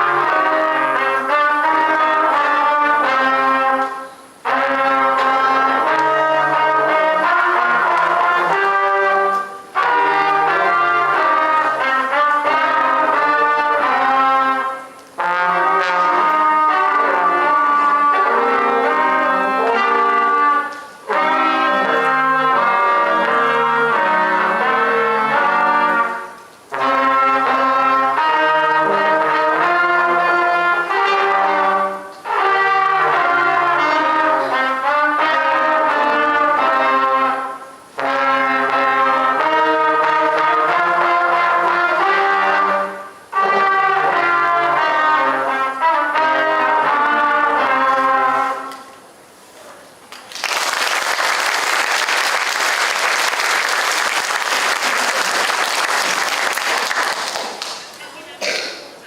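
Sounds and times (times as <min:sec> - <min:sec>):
brass ensemble playing folk tune: 0:00.0 - 0:49.6, 0:50.4 - 0:58.6
audience applauding: 0:50.1 - 0:58.1.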